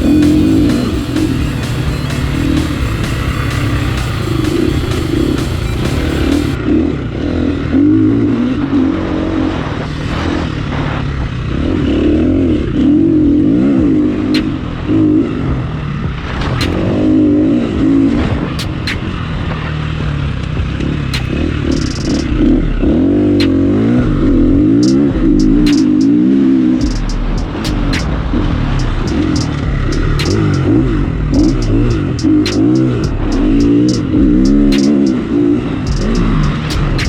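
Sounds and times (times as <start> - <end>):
dirt bike engine revving: 0.0 - 37.0
sharp ticks: 14.3 - 14.6, 16.6 - 16.9, 21.2 - 22.5, 24.8 - 26.2, 26.8 - 35.2, 35.9 - 37.0.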